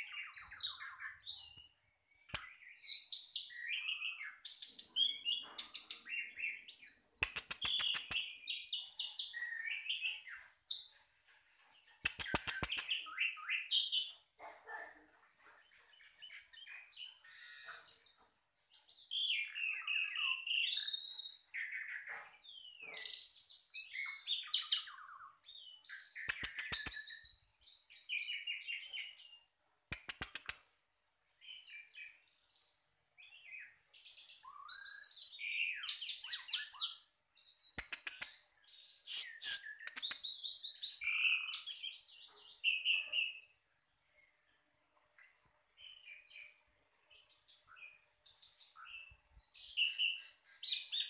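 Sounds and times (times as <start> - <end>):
bird singing: 0.0 - 10.9, 16.0 - 29.4, 31.5 - 43.5, 47.2 - 51.0.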